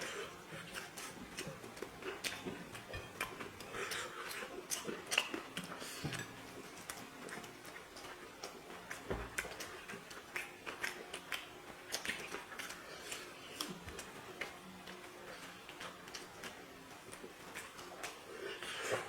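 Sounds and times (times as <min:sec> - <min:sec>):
chewing and smacking: 0:00.0 - 0:19.0.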